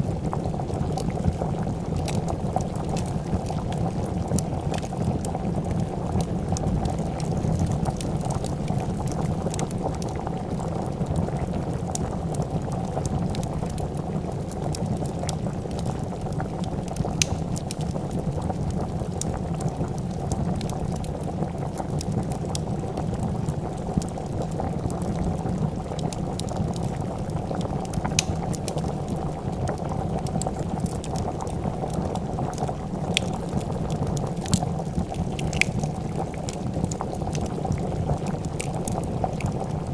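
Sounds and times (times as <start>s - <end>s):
soup bubbling in a pot: 0.0s - 39.9s
wood fire popping and crackling: 0.0s - 39.9s.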